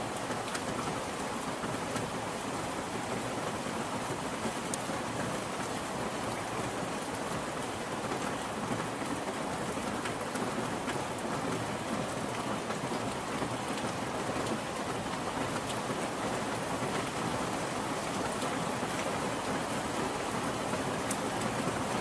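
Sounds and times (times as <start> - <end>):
steady rain falling: 0.0 - 22.0
individual raindrop ticks: 20.5 - 21.8.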